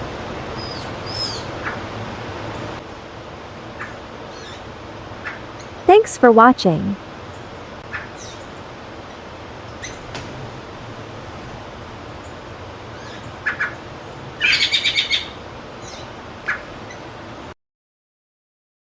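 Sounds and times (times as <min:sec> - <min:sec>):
wild birds chirping: 0:12.2 - 0:17.1.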